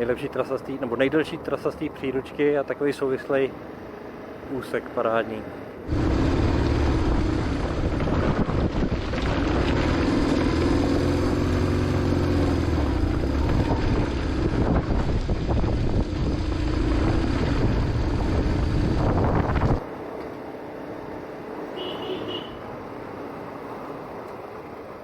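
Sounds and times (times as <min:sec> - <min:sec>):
motorcycle engine running: 0:05.9 - 0:19.8
wind rushing over microphone: 0:05.9 - 0:19.8.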